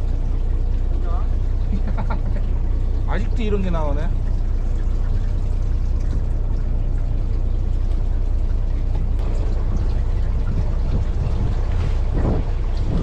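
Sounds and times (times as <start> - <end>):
boat engine rumbling: 0.0 - 13.0
water wash: 0.0 - 13.0
wind noise: 9.6 - 13.0.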